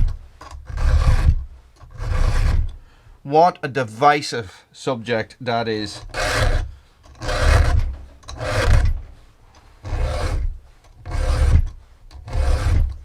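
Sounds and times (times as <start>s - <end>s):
file rasping on chainsaw chain: 0.0s - 2.8s, 5.9s - 9.0s, 9.6s - 13.0s.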